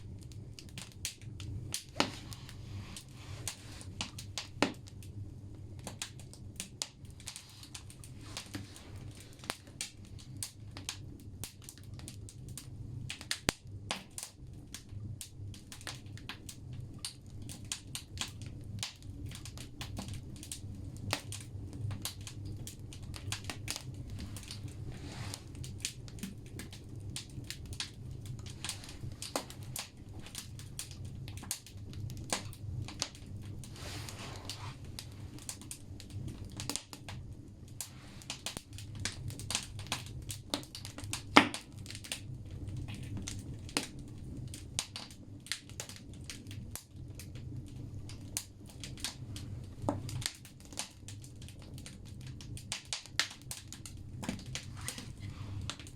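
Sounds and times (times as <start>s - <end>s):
burning logs crackling and popping: 0.0s - 55.9s
fire low rumble: 0.0s - 55.9s.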